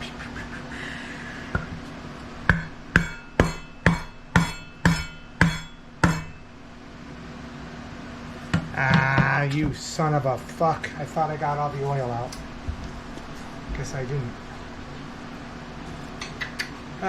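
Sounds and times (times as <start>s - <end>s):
hammer striking metal: 2.5s - 6.5s.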